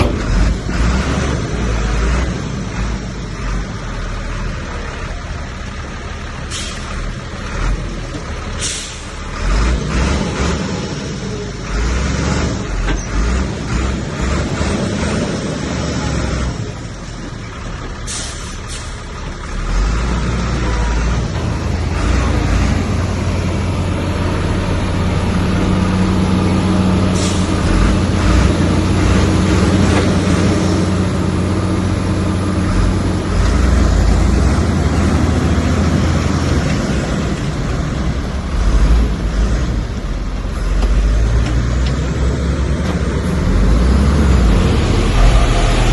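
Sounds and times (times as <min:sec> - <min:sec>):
heavy diesel machinery engines: 0:00.0 - 0:45.9
air brake hisses: 0:06.5 - 0:06.9, 0:08.6 - 0:09.1, 0:18.1 - 0:19.0, 0:27.1 - 0:27.6.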